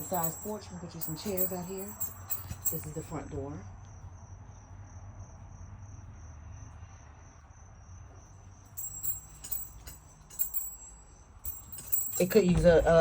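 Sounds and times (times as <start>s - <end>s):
keys jangling in a lock: 0.0s - 3.1s, 8.7s - 13.0s.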